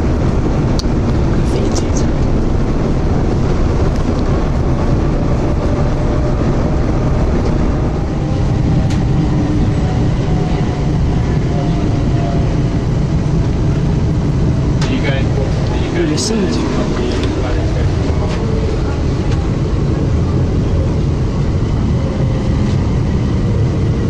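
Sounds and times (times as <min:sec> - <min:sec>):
train rumble inside carriage: 0:00.0 - 0:24.0.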